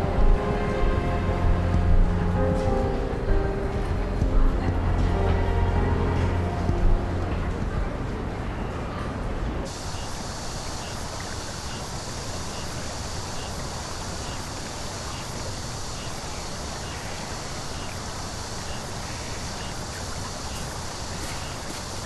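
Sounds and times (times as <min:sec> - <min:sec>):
outdoor rushing hiss: 0:09.6 - 0:22.0.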